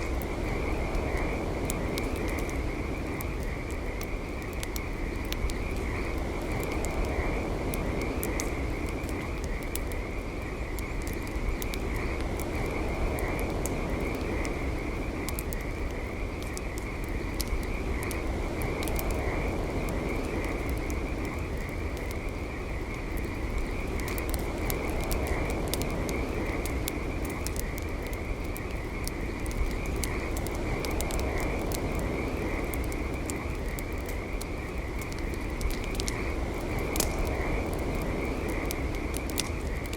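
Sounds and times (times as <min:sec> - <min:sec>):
campfire crackling and popping: 0:00.0 - 0:39.9
frogs trilling: 0:00.0 - 0:39.9.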